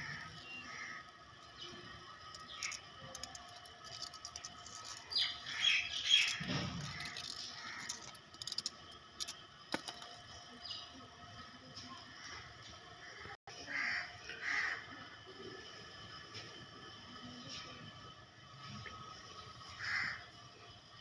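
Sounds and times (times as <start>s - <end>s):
small birds chirping: 0.0s - 11.5s.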